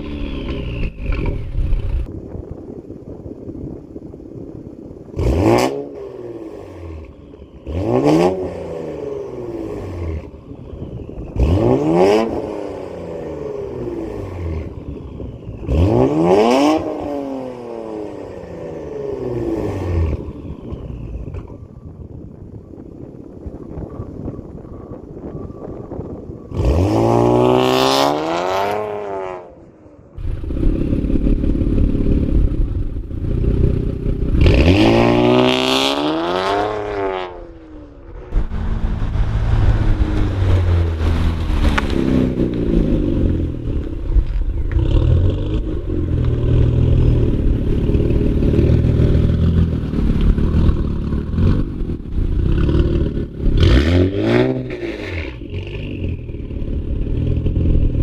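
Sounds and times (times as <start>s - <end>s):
car exhaust accelerating past: 24.4s - 58.0s
low engine rumble: 29.6s - 34.5s, 37.3s - 53.7s, 55.3s - 58.0s.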